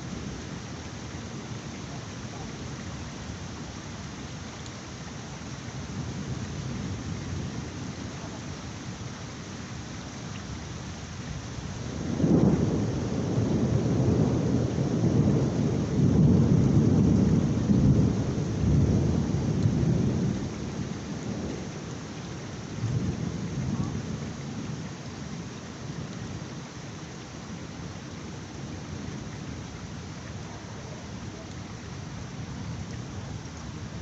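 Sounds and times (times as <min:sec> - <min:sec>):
heavy rain: 0:00.0 - 0:34.0
thunder rolling: 0:12.0 - 0:20.4.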